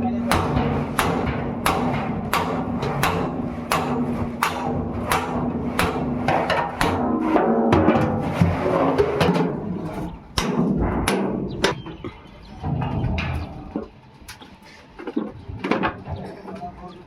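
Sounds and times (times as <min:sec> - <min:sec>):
hammer on sheet steel: 0:00.2 - 0:08.6.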